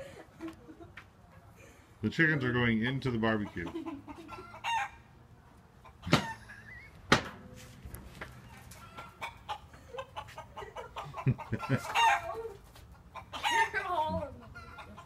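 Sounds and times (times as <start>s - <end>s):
chickens clucking: 3.2s - 6.5s, 8.3s - 15.0s
sharp knocks: 7.1s - 7.4s.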